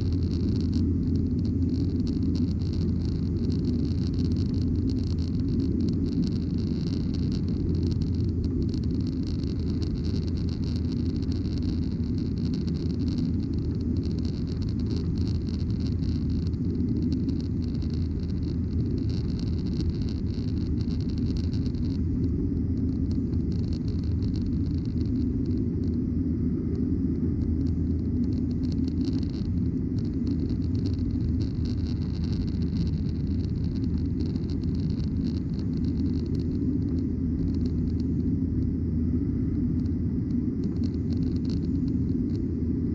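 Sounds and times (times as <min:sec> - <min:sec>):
airplane cabin engine noise: 0:00.0 - 0:42.9.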